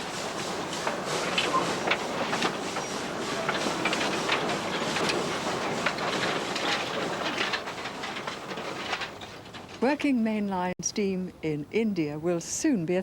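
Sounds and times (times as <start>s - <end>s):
train rumbling on track: 0.0s - 9.9s
wheels clicking and clanking: 0.0s - 10.0s.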